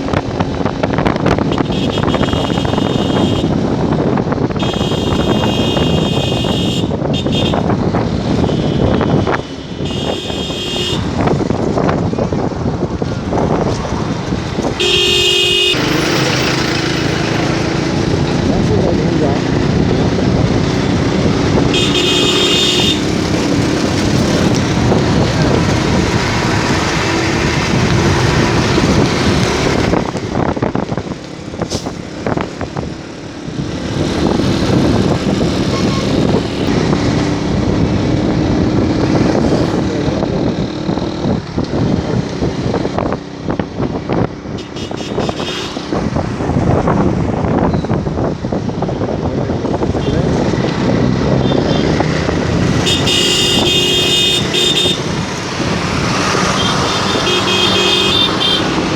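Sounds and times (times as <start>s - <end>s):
motorcycle engine running: 0.0s - 31.6s
passing traffic: 0.0s - 58.9s
wind and road noise: 0.0s - 58.9s.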